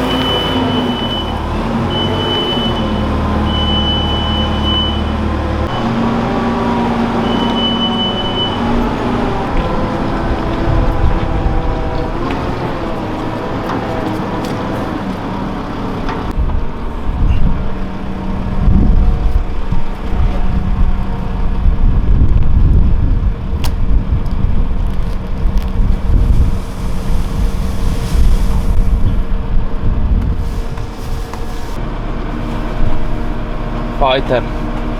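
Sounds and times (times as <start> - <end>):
reversing beeper: 0.0 - 12.2
farm machine engine running: 0.0 - 34.9
heavy uneven low rumble: 0.0 - 34.9.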